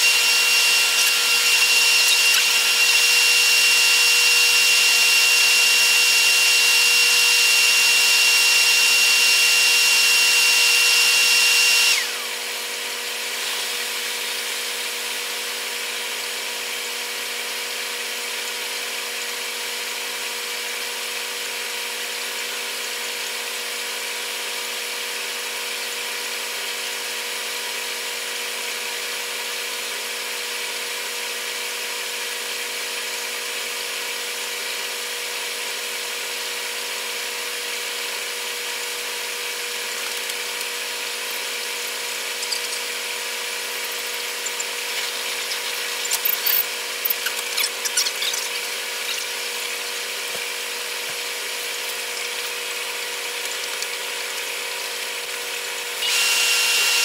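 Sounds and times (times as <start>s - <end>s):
high-pitched whirring drone: 0.0s - 6.0s, 39.9s - 57.0s.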